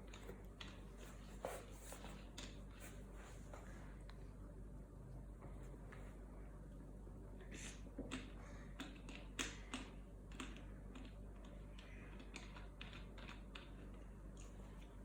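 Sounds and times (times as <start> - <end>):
faint clicks and taps: 7.9 - 15.0.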